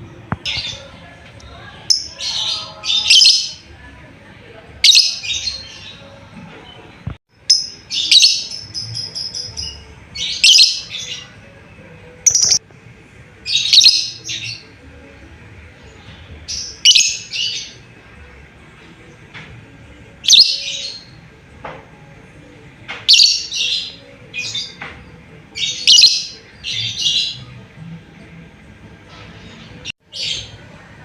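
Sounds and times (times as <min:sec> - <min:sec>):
lovebird shrill chirping calls: 0:12.3 - 0:12.6.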